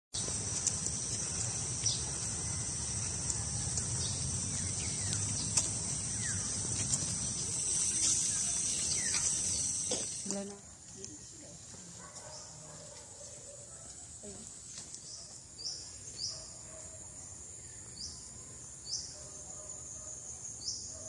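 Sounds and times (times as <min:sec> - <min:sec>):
bird chirps: 0:00.2 - 0:11.2
insects chorus: 0:00.2 - 0:21.0.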